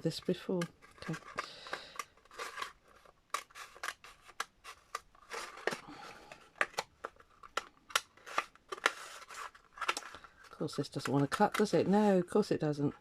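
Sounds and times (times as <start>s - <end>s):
scissors scraping cardboard: 0.6s - 5.8s, 7.5s - 10.1s.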